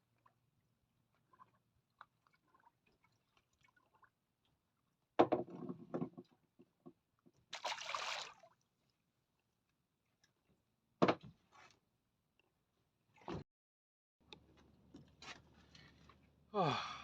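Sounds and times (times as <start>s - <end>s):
water splashing: 7.5s - 8.6s.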